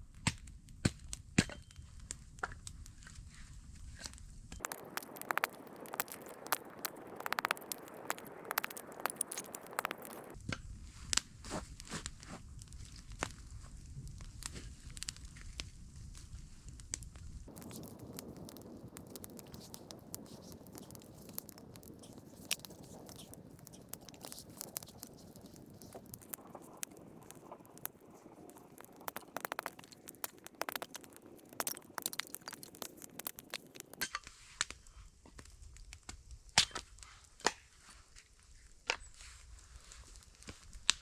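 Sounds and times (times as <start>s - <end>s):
campfire crackling and popping: 4.6s - 10.4s, 16.8s - 34.8s.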